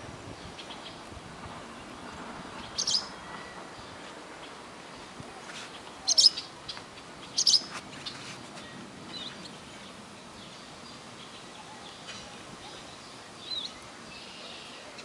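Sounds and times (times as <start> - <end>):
faint steady hiss: 0.0 - 15.0
bird chirping: 2.6 - 4.0, 5.8 - 15.0.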